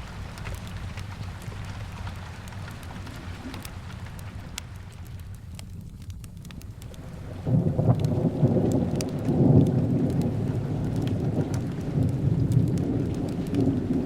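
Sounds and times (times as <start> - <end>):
fireplace crackling: 0.0 - 14.0
steady rain: 0.0 - 14.0
thunder rumbling: 6.8 - 14.0.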